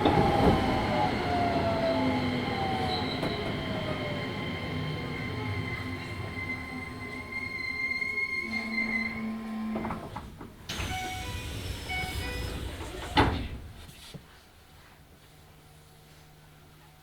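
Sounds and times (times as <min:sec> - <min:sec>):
train clunk: 0:00.0 - 0:07.2, 0:08.9 - 0:14.3
train inverter whining: 0:00.0 - 0:14.0
sliding doors banging open: 0:09.6 - 0:14.0
air hiss: 0:10.7 - 0:14.0.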